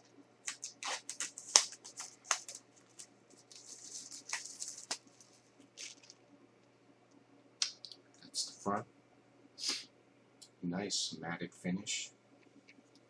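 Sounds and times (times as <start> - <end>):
packaging clicks: 0.5 - 5.1
packaging sliding scrape: 0.5 - 6.1
light packaging rustles: 0.5 - 6.2.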